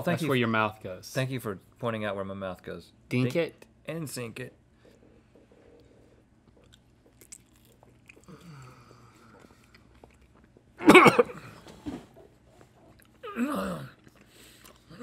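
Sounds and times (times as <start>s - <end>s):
men chewing toast: 4.8s - 11.5s, 12.4s - 15.0s
man groaning in disgust: 13.2s - 14.0s.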